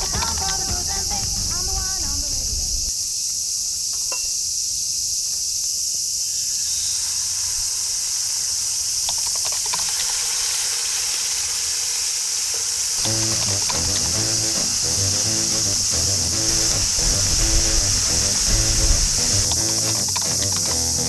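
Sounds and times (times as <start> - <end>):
insects chirping chorus: 0.0 - 21.0
faint clicks: 13.0 - 21.0.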